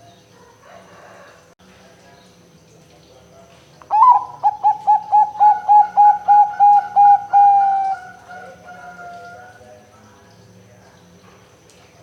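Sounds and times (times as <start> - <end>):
dove cooing: 3.9 - 9.5.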